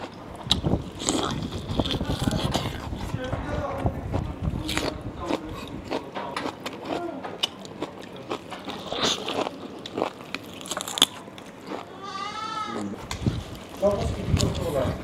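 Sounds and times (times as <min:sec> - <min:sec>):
chewing meat: 0:00.0 - 0:03.4, 0:04.1 - 0:12.3.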